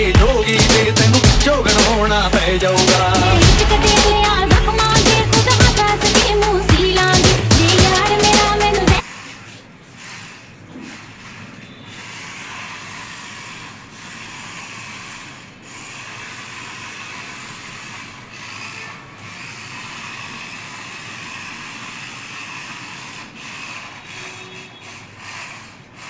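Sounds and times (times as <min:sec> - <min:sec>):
rc car motor whirring: 0:10.0 - 0:26.0.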